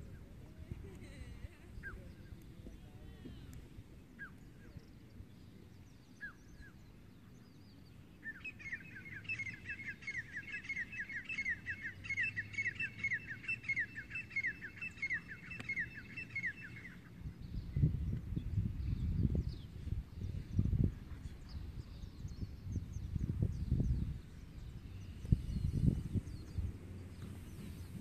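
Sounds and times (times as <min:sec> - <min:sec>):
wind rumble on microphone: 0:00.0 - 0:08.4, 0:15.7 - 0:28.0
bird singing: 0:01.7 - 0:28.0.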